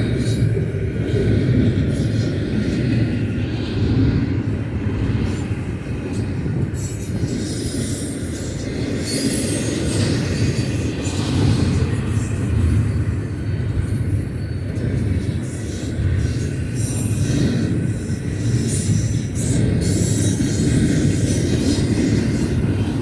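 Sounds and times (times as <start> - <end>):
freight train wheels rumbling: 0.0 - 23.0
thin high squeals: 6.8 - 15.7.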